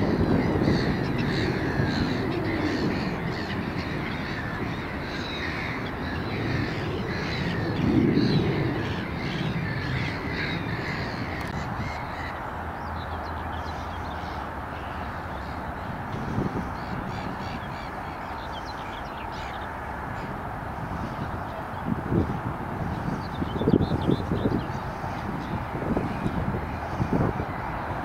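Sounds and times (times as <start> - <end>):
birds making harsh calls: 0.0 - 21.9
distant road traffic rumble: 0.0 - 28.0.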